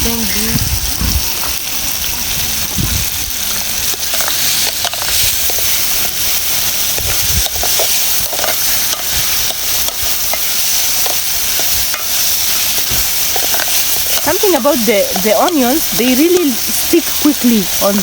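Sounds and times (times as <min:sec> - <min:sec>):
onions sizzling in a pan: 0:00.0 - 0:18.0
spoon scraping and tapping pan: 0:06.9 - 0:15.6.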